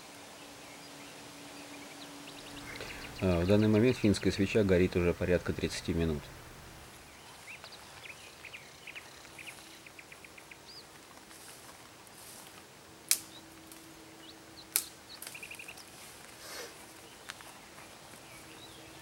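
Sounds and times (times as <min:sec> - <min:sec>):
small birds chirping: 0:00.6 - 0:11.0, 0:13.2 - 0:16.1, 0:16.8 - 0:19.0
burning log torch popping: 0:02.4 - 0:07.0.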